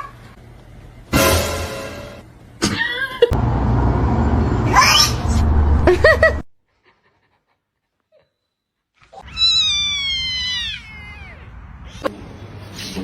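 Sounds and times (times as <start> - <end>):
cat meowing: 9.2 - 12.1.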